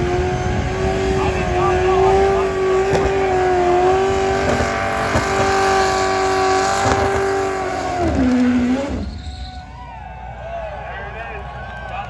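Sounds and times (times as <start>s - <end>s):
car engine revving high: 0.0s - 9.3s.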